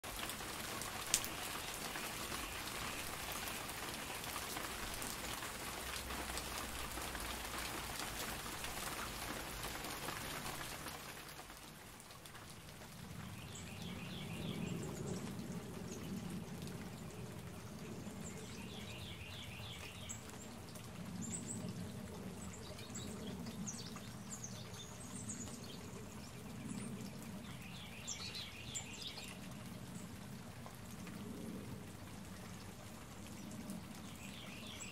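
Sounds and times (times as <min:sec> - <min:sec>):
rain hissing: 0:00.0 - 0:34.9
water dripping: 0:00.0 - 0:34.9.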